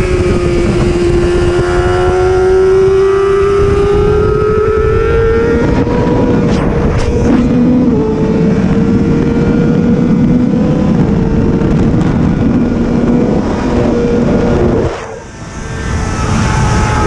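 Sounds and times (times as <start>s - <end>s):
motorcycle engine at high revs: 0.0s - 17.0s
wind noise: 0.0s - 17.0s.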